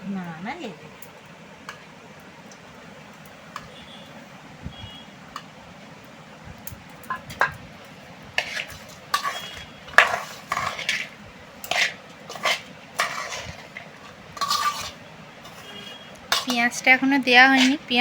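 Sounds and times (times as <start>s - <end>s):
spoon scraping a bowl: 8.4s - 16.8s, 17.4s - 18.0s.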